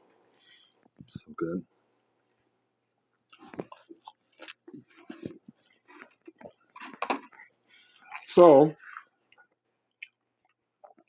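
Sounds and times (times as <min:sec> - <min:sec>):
person chewing: 0:02.2 - 0:11.0.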